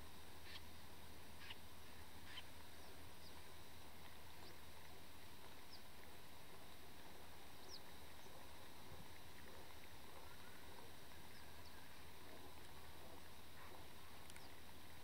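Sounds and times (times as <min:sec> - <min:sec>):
faint high bird calls: 0:00.4 - 0:00.7, 0:01.4 - 0:01.6, 0:02.2 - 0:03.4, 0:10.2 - 0:12.1.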